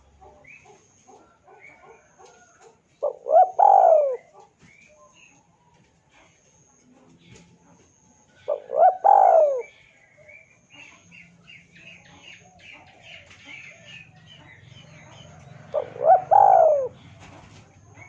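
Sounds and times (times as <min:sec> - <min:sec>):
dove cooing: 0:00.0 - 0:04.6, 0:08.3 - 0:11.2, 0:12.1 - 0:18.0
small birds chirping: 0:00.0 - 0:18.0.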